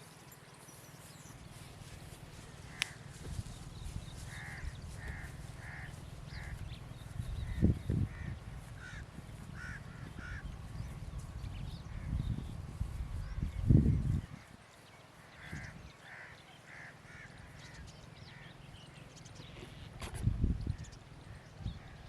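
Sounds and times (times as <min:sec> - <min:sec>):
crow cawing: 0:04.2 - 0:10.6, 0:15.2 - 0:18.5.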